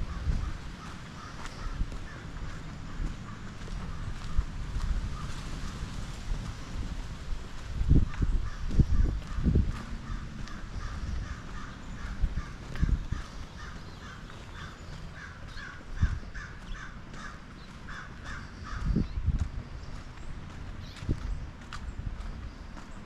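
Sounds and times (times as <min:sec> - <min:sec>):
crows cawing: 0:00.0 - 0:05.6, 0:08.0 - 0:19.1.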